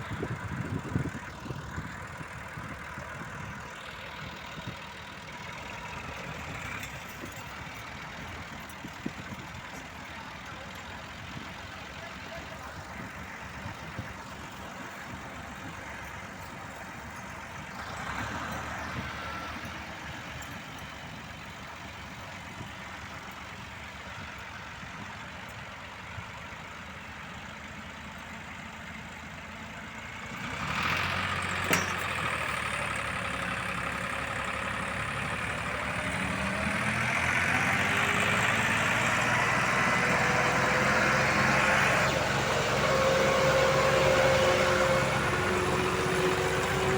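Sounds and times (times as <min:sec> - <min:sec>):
heavy machinery diesel engines: 0:00.0 - 0:46.9.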